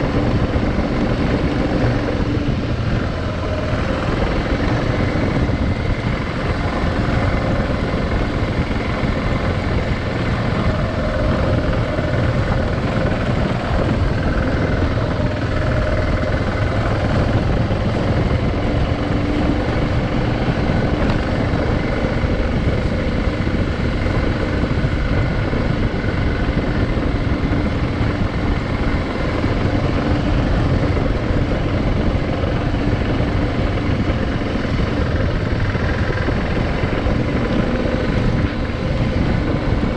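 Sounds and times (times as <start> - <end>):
motorcycle engine drone: 0.0 - 39.9
wind and road noise: 0.0 - 39.9.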